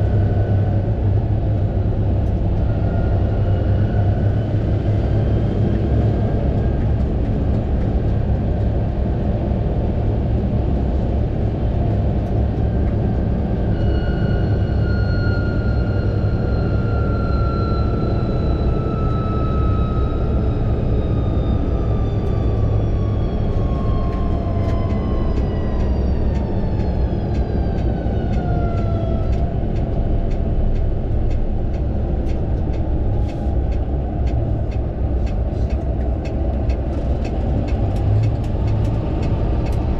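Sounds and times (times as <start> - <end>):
tractor engine rumble: 21.5 - 39.9.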